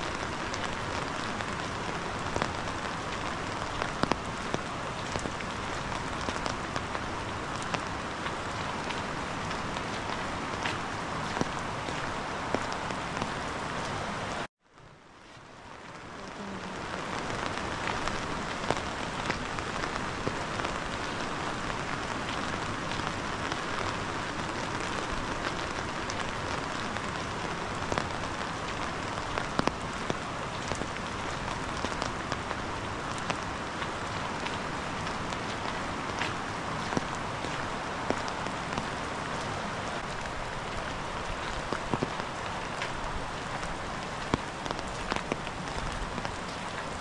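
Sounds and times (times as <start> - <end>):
raindrops ticking close by: 0.0 - 47.0
steady rain falling: 0.0 - 47.0.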